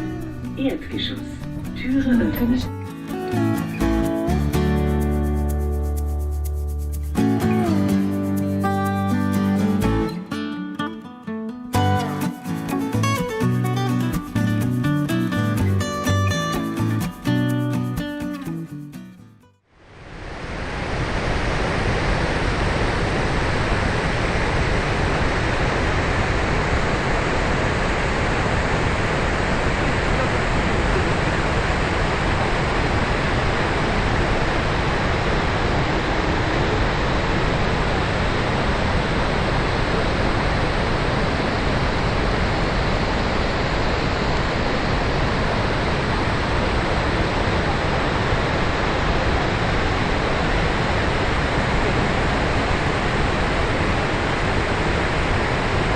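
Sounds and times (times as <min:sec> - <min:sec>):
waterfall roaring: 0:19.9 - 0:55.9.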